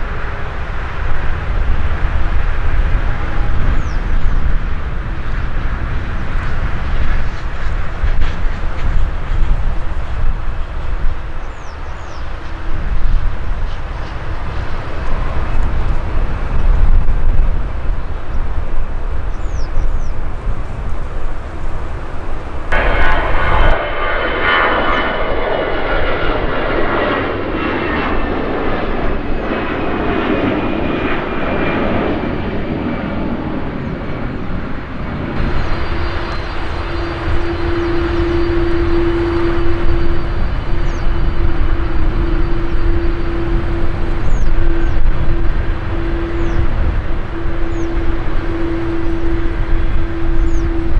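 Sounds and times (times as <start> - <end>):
jet engines roaring and whining: 0.0 - 50.9
faint chirps: 35.4 - 46.7.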